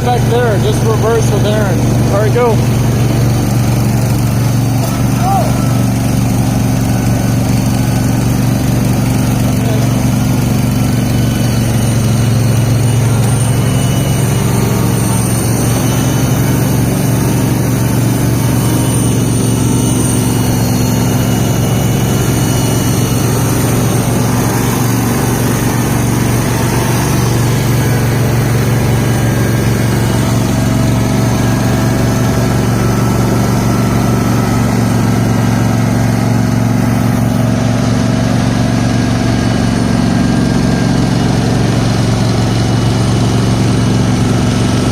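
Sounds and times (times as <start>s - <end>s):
tractor engine droning: 0.0s - 44.9s.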